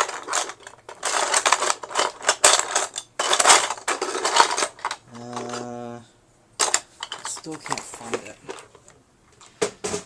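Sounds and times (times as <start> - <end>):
plastic bricks clattering: 0.0 - 5.7, 6.6 - 8.9.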